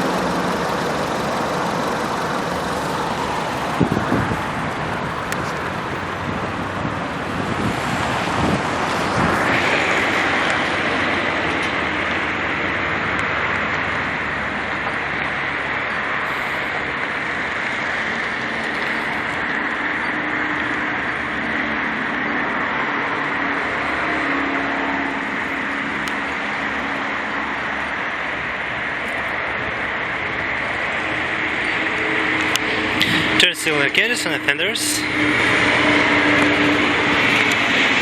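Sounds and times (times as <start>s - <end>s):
steady rushing noise with rumble: 0.0s - 20.5s.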